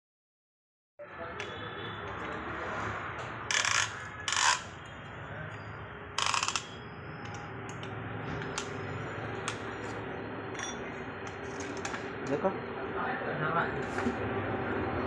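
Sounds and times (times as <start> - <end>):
ratchet flutter: 6.2 - 6.7.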